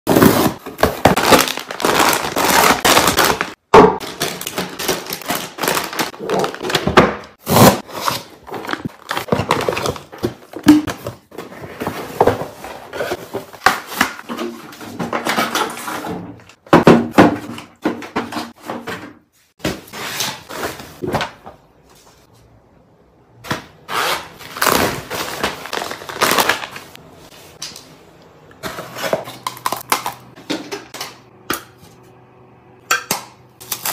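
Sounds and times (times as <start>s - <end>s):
food packages rustling and knocking: 0.1s - 22.3s, 23.6s - 27.9s.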